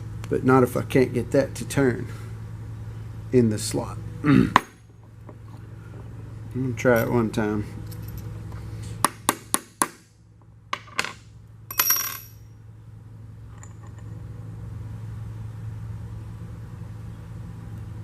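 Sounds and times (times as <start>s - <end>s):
low hum: 0.0s - 9.0s
ringing metallic clink: 11.7s - 12.5s.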